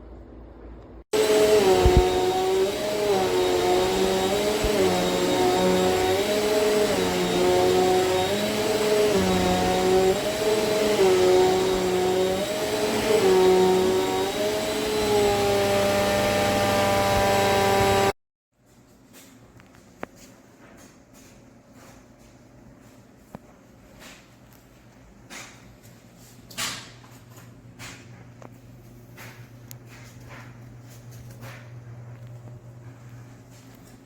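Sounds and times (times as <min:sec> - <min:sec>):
vacuum cleaner running: 0:01.1 - 0:18.2.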